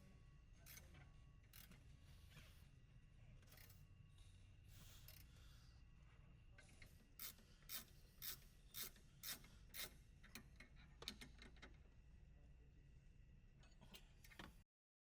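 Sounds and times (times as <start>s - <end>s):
faint ratchet wrench clicking: 1.5s - 1.8s, 5.0s - 5.3s, 6.8s - 11.7s.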